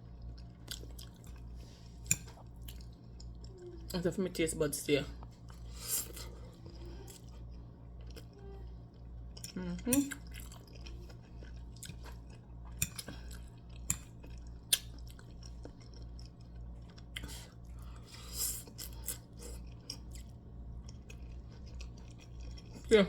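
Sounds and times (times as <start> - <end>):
person chewing: 0.0 - 3.9, 5.2 - 22.9
steady low hum: 0.0 - 23.0.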